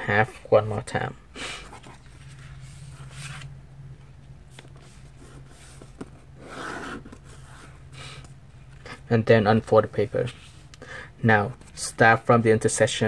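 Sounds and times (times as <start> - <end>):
steady low hum: 0.0 - 13.0
paper rustling and scraping: 1.6 - 3.5.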